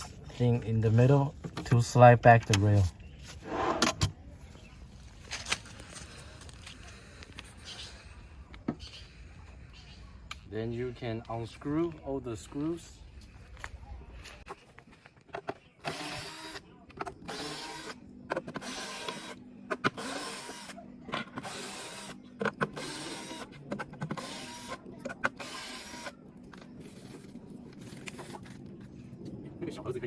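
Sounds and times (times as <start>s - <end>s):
power screwdriver motor whirring: 15.8s - 16.6s, 18.6s - 20.8s, 21.4s - 26.2s.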